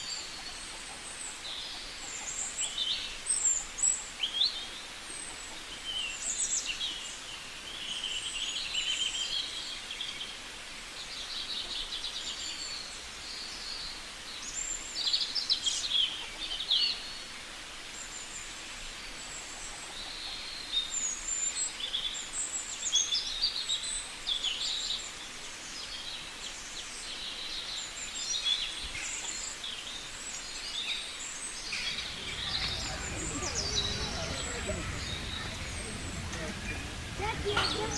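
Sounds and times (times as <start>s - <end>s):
steady background hiss: 25.2s - 37.9s.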